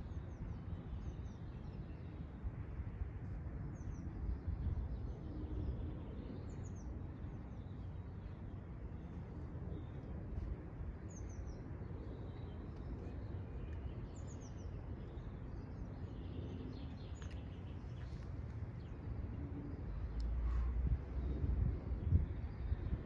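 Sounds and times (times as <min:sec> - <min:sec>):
low outdoor rumble: 0:02.5 - 0:23.0
small birds chirping: 0:11.0 - 0:20.6.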